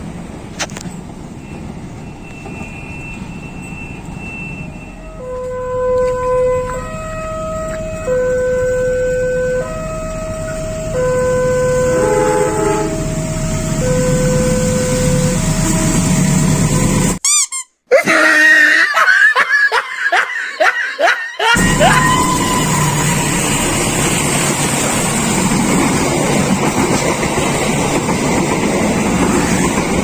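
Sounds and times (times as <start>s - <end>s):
multi-tone horn notes: 4.9s - 15.9s
rising whoops: 21.4s - 23.5s.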